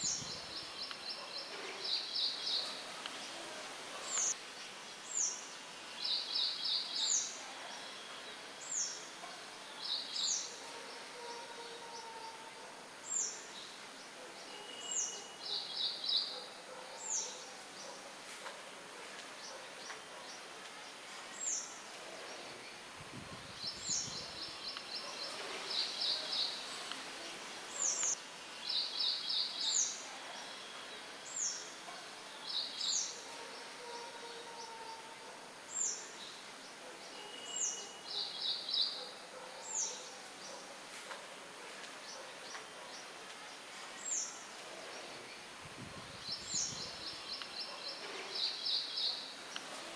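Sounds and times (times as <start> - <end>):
light wind hiss: 0.0 - 10.5, 20.6 - 33.1, 43.3 - 49.9.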